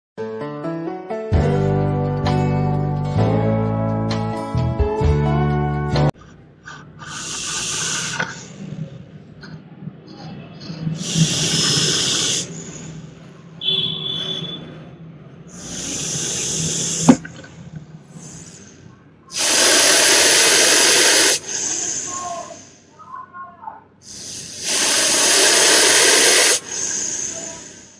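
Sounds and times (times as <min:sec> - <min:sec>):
snake hissing: 0:07.0 - 0:08.6, 0:11.0 - 0:13.1, 0:15.5 - 0:17.3, 0:18.1 - 0:22.9, 0:24.0 - 0:27.9.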